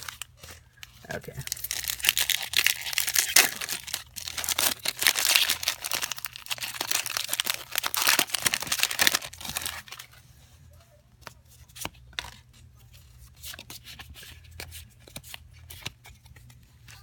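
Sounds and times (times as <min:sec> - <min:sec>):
foil wrapper crinkling and tearing: 0:01.4 - 0:10.1.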